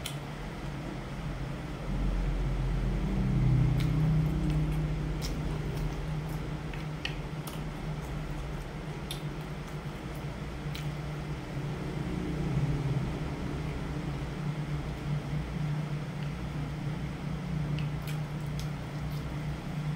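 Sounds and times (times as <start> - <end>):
steady low hum: 0.0 - 19.9
person chewing food: 3.6 - 11.2, 17.7 - 19.9
wet mouth clicks and crackles: 3.7 - 11.0, 17.7 - 19.4.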